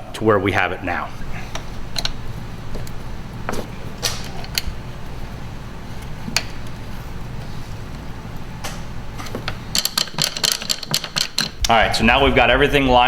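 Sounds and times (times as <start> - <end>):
steady low hum: 0.0 - 13.0
metallic clicks and clinks: 9.7 - 11.6.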